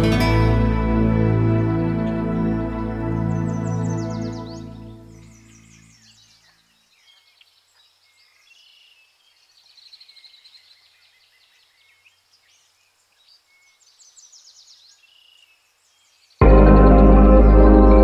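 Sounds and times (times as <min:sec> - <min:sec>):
background music: 0:00.0 - 0:05.7, 0:16.4 - 0:18.0
birds chirping and singing: 0:01.4 - 0:18.0.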